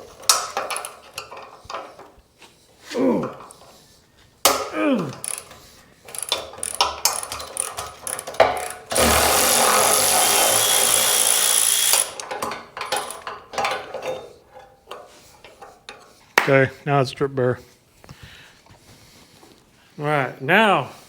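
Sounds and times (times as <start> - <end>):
metal parts clanking: 0.0 - 2.2, 4.5 - 16.1
power tool running: 8.0 - 12.3.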